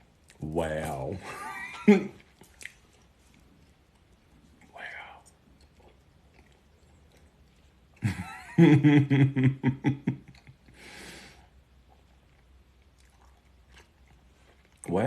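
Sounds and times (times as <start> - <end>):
man laughing: 1.2 - 2.2, 8.0 - 10.8
breathy exhale: 10.8 - 11.5.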